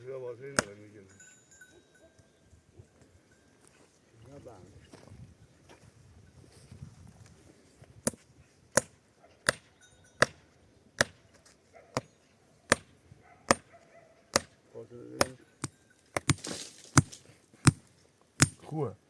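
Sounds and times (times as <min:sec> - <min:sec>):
hammer knocking tent stake: 0:12.7 - 0:12.9, 0:14.3 - 0:14.6, 0:15.2 - 0:18.7.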